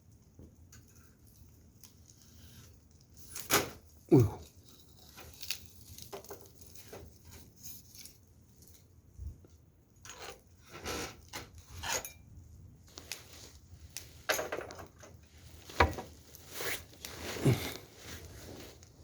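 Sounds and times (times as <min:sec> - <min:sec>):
firewood knocking and clattering: 0:14.2 - 0:16.3
short rustling scrapes: 0:15.3 - 0:19.0.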